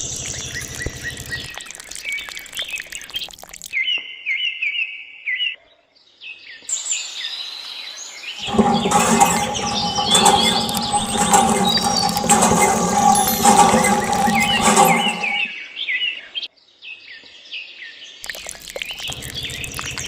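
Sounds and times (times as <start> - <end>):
low hum: 8.4 - 15.5.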